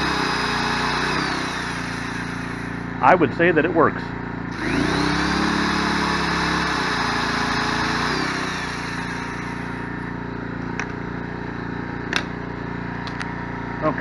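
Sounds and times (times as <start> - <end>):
electric drill whirring: 0.0 - 3.0, 4.3 - 13.4
generator engine running: 0.0 - 14.0.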